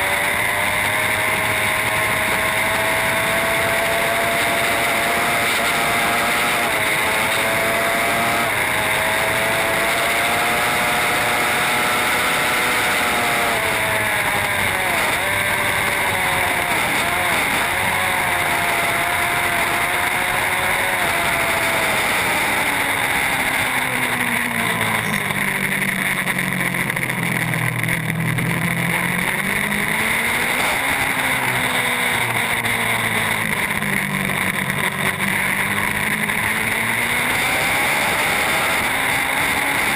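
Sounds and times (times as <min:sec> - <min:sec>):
superbike engine at high revs: 0:00.0 - 0:39.9.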